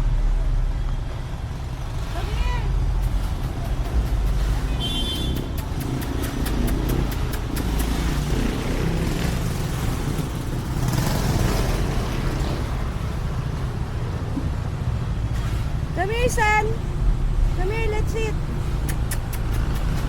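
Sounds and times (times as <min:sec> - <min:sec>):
traffic rumble: 0:00.0 - 0:20.0
vehicle passing with hiss: 0:01.3 - 0:20.0
quick clicks: 0:05.2 - 0:08.4, 0:18.7 - 0:20.0.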